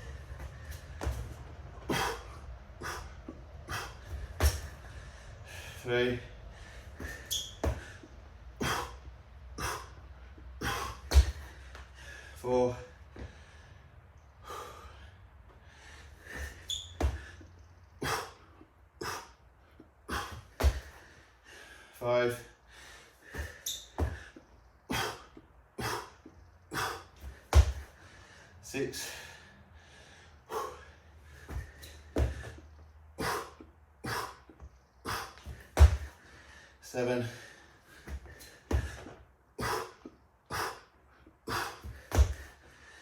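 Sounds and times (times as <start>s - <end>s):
man breathing hard: 0.0s - 43.0s
dull thuds on the floor: 11.1s - 11.5s, 20.6s - 21.0s, 27.2s - 27.9s, 31.5s - 32.5s, 35.5s - 36.2s, 41.8s - 42.5s
thud of landing on floor: 11.1s - 11.5s, 27.6s - 27.9s, 35.8s - 36.1s, 41.9s - 42.5s.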